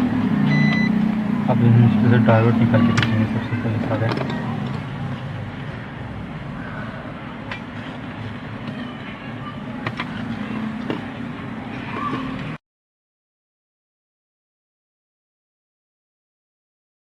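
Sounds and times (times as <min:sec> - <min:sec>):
low hum and rumble: 0:00.0 - 0:12.6.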